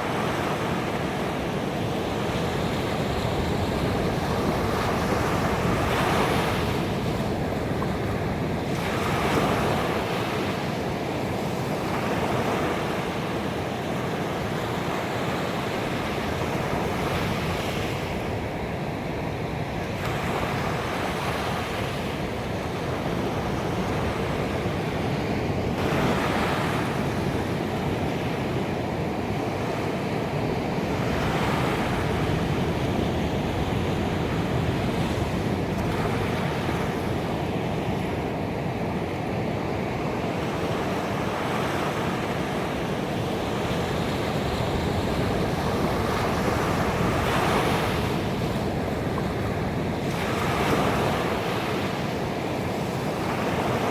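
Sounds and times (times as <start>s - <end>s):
ocean waves breaking on beach: 0.0s - 53.9s.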